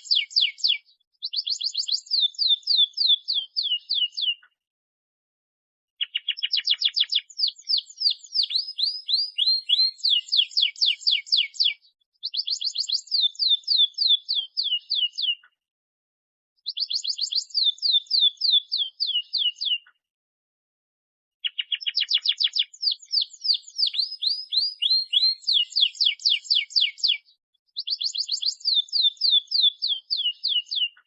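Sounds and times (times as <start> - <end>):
canary singing trilled notes: 0.0 - 4.4, 6.0 - 15.4, 21.4 - 31.0.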